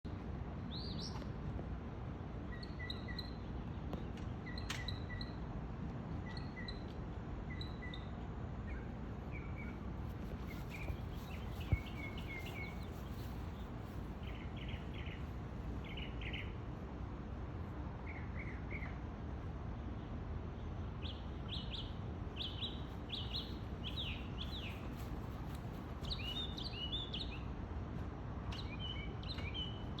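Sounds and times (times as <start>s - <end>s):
low background rumble: 0.0s - 30.0s
bird singing: 2.5s - 3.6s, 4.3s - 5.4s, 6.2s - 9.8s, 10.4s - 13.3s, 14.2s - 16.6s, 21.0s - 25.0s, 26.0s - 27.5s, 28.5s - 30.0s.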